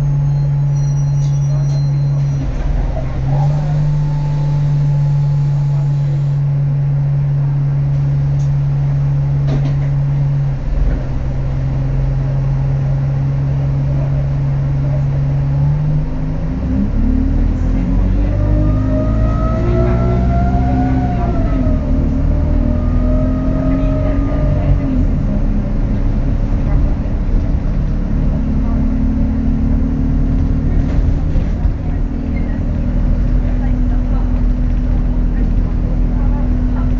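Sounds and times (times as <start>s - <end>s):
bus engine droning: 0.0s - 36.9s
turbocharger whistle: 3.3s - 6.1s.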